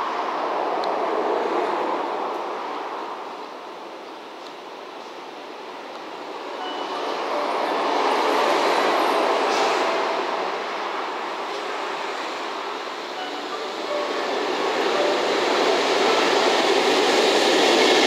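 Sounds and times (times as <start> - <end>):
freight train rumbling past: 4.9 - 18.0.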